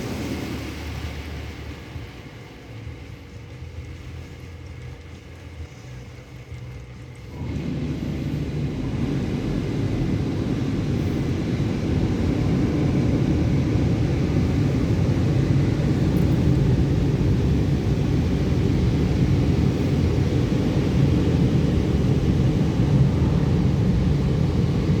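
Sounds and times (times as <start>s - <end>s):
car wash machinery rumble: 0.0s - 25.0s
rush of car wash spray: 0.0s - 25.0s.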